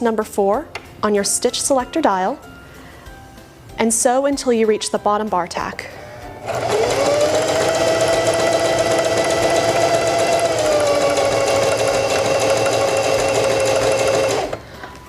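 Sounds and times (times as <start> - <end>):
sewing machine running: 6.4 - 14.6.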